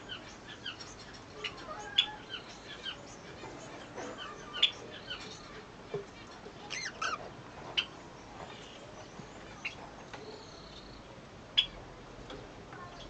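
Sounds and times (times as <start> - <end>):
cockatiel chirping: 6.7 - 7.2.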